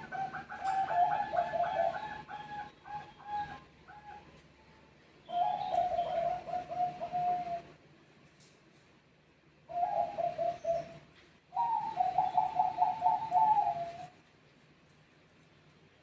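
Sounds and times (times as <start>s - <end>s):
dove cooing: 0.0s - 4.4s, 5.2s - 7.8s, 9.7s - 14.2s.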